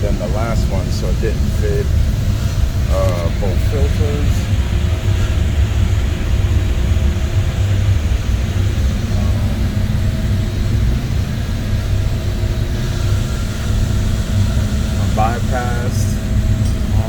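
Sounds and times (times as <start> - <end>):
faint even hum: 0.0 - 17.0
low machinery rumble: 0.0 - 17.0.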